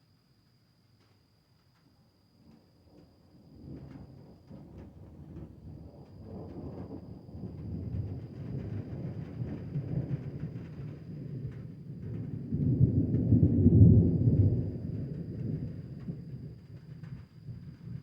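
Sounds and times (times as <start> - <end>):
deep rolling thunder: 6.2 - 16.6.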